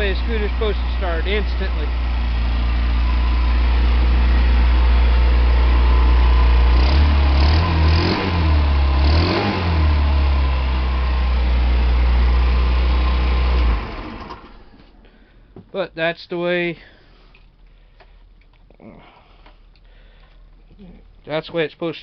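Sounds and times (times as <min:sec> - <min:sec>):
scooter engine idling and revving: 0:00.0 - 0:15.0.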